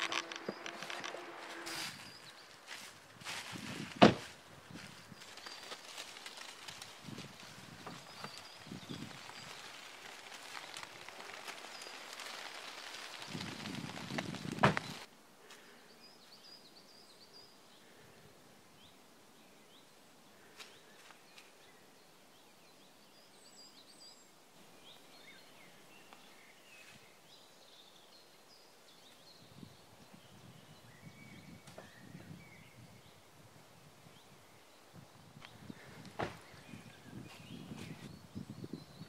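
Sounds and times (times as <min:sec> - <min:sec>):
soft low rustling: 0:00.0 - 0:15.1
small birds chirping: 0:04.6 - 0:18.2, 0:34.0 - 0:39.0.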